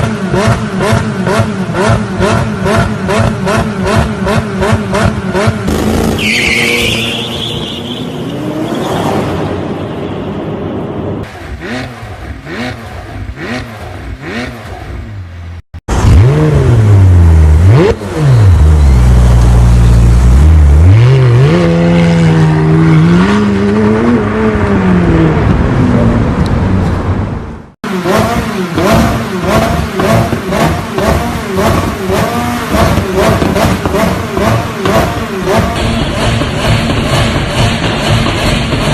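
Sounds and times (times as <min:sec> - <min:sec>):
sports car exhaust revving: 0:27.9 - 0:38.9.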